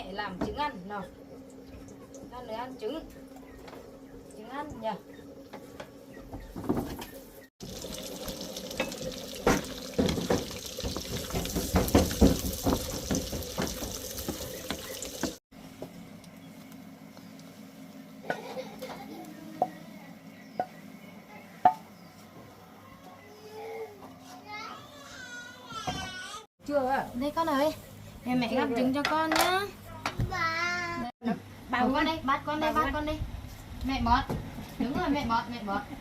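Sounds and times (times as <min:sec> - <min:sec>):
egg sizzling over a fire: 0:07.6 - 0:15.4.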